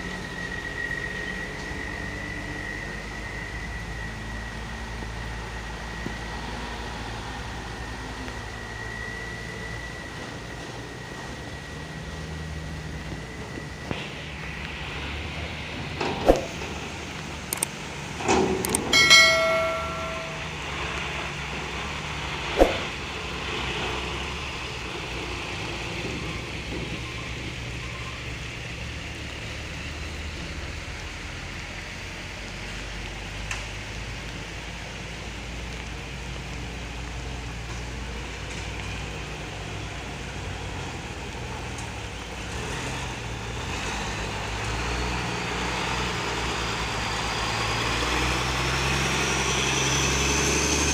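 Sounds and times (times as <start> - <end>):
sharp metallic knocks: 18.6 - 20.6, 22.6 - 22.9
brief ringing tone: 18.9 - 20.7.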